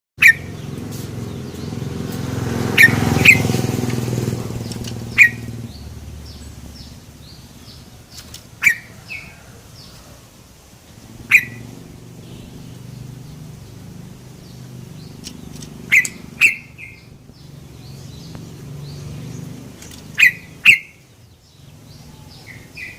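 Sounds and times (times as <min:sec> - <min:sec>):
bird sharp call notes: 0:00.2 - 0:00.6, 0:02.7 - 0:03.6, 0:04.6 - 0:05.8, 0:08.6 - 0:09.5, 0:11.2 - 0:13.0, 0:15.2 - 0:17.1, 0:20.0 - 0:21.1
low engine rumble: 0:00.2 - 0:22.9
faint high bird chirps: 0:04.6 - 0:10.1, 0:11.2 - 0:13.5, 0:14.4 - 0:22.9.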